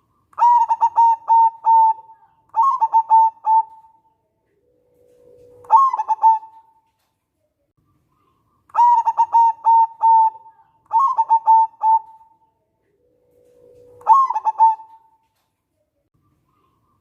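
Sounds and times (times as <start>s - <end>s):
dove cooing: 0.4s - 6.9s, 8.7s - 15.2s.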